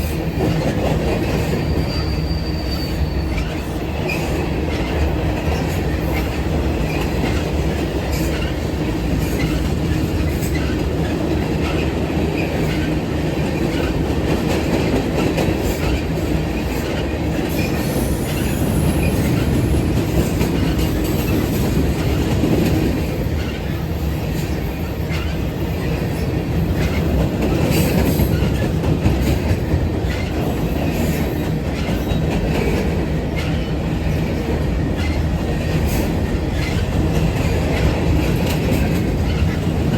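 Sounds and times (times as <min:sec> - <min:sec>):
rhythmic clacking over rail joints: 0:00.0 - 0:39.9
train wheels rumbling on rails: 0:00.0 - 0:39.9
high wheel squeals: 0:01.5 - 0:04.3.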